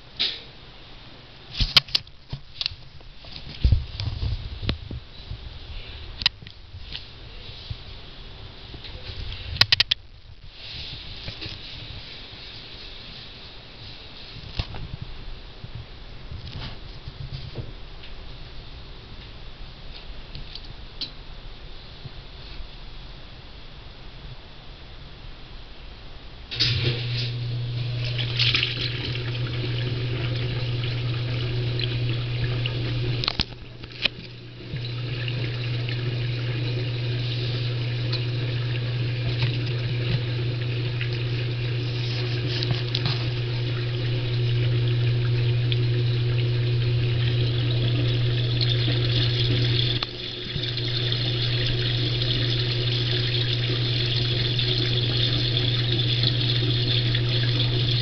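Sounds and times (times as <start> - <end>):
low steady hum: 0.0 - 58.0
water rushing through a pipe: 26.5 - 58.0.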